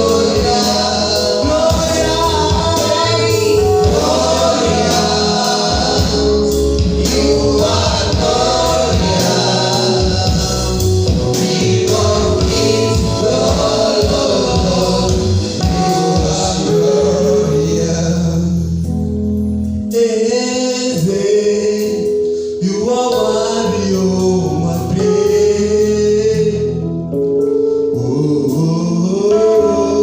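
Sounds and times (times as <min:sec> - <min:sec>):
choir singing: 0:00.0 - 0:18.2
band accompaniment: 0:00.0 - 0:20.5.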